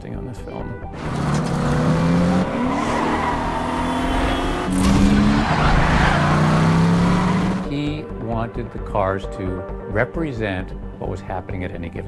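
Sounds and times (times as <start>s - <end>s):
tyres skidding: 0.9s - 8.0s
car engine revving: 1.0s - 8.0s.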